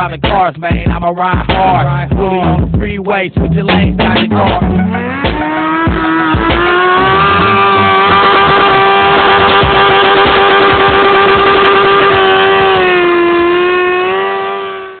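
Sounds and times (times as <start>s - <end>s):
motorcycle engine at high revs: 4.0s - 15.0s.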